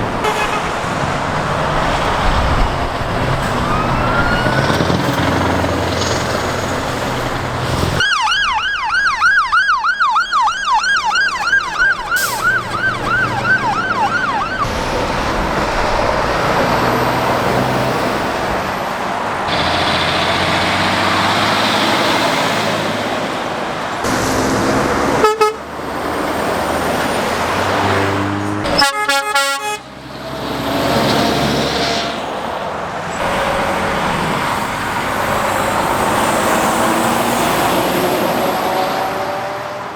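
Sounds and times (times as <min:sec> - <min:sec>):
road traffic passing: 0:00.0 - 0:08.1, 0:09.0 - 0:39.9
emergency siren yelping: 0:01.8 - 0:06.0, 0:08.0 - 0:15.2.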